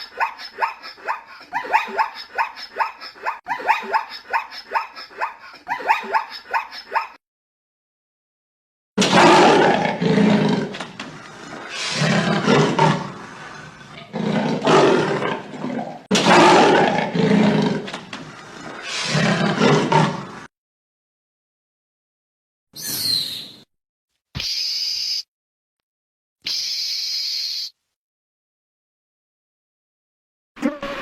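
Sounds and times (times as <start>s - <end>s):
big cat roaring: 9.0s - 18.0s, 18.9s - 20.5s.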